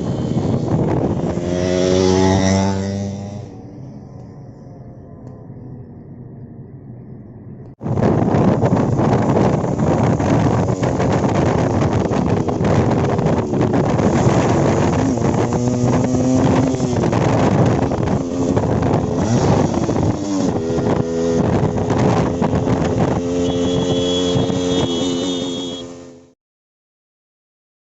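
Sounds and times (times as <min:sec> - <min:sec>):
two-stroke motorcycle engine revving: 0:00.0 - 0:03.6, 0:09.2 - 0:26.3
wind buffeting microphone: 0:00.0 - 0:04.5, 0:05.5 - 0:25.2.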